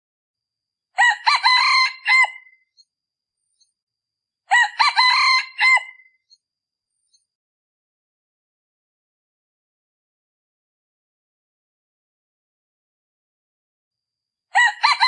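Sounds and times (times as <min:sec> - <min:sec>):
rooster crowing: 0:01.0 - 0:02.6, 0:04.5 - 0:06.1, 0:14.5 - 0:15.0.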